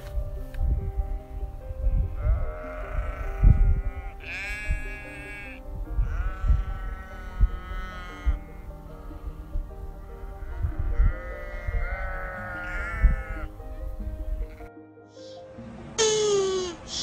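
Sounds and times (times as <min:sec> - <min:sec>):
background music: 0:00.0 - 0:17.0
sheep bleating: 0:02.2 - 0:10.2, 0:10.9 - 0:13.5.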